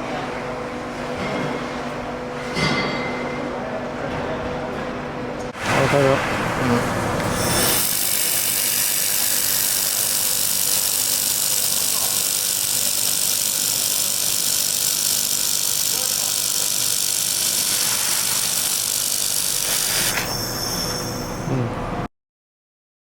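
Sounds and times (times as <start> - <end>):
laser welding machine hissing: 5.6 - 21.5.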